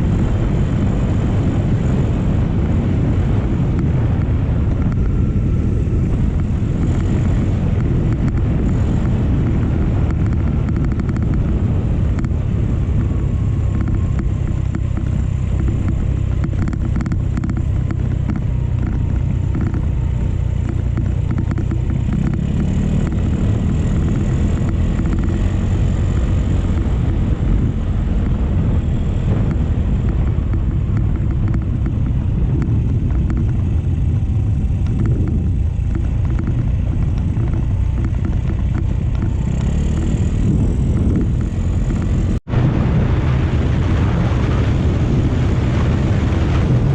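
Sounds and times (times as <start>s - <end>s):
motorcycle engine rumble: 0.0s - 46.9s
wind noise on microphone: 0.0s - 46.9s.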